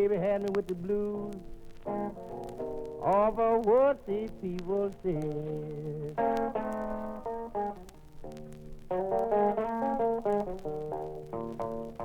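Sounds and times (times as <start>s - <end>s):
person singing: 0.0s - 1.5s, 3.0s - 7.0s
blues guitar picked notes: 0.0s - 12.0s.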